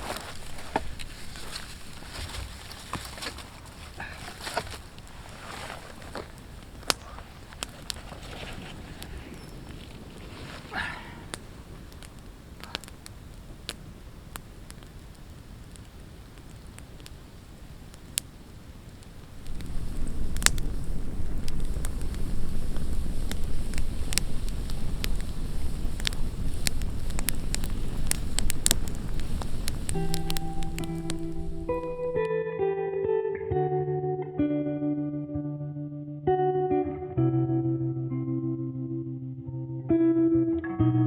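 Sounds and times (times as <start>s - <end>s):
campfire crackling and popping: 0.0s - 32.4s.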